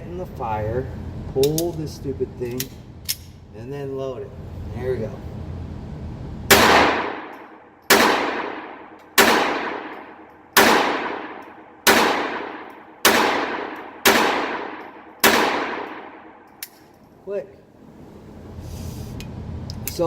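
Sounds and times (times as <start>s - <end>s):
pistol shots echoing: 6.5s - 16.5s.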